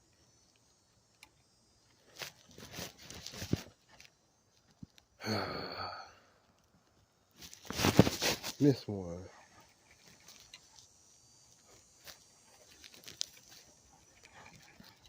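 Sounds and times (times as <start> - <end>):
man sighing: 5.2 - 6.4
faint rustling: 7.3 - 15.0.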